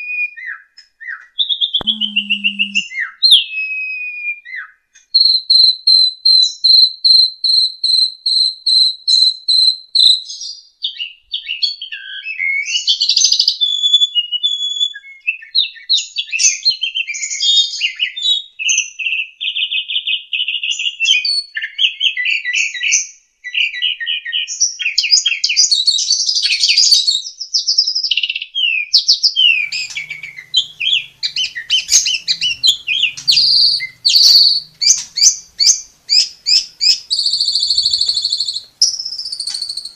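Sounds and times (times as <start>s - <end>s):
starling singing: 1.8s - 2.9s, 29.4s - 39.9s.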